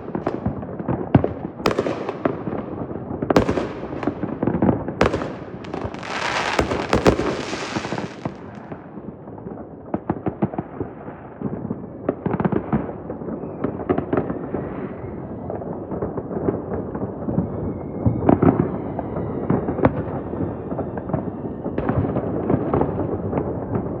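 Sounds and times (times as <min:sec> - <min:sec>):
fireworks bangs and pops: 0:00.0 - 0:14.4
fireworks hissing crackle: 0:05.0 - 0:08.7.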